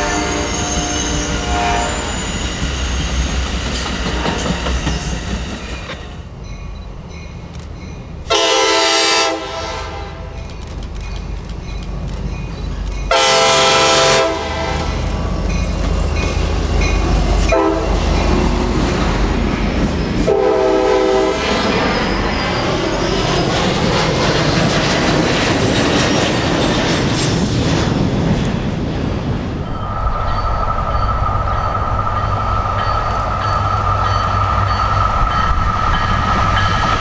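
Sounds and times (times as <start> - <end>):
train horn blasts: 0.0 - 2.2, 8.3 - 10.4, 13.1 - 15.1, 17.4 - 18.2, 20.2 - 21.6
train wheels on rails: 0.0 - 37.0.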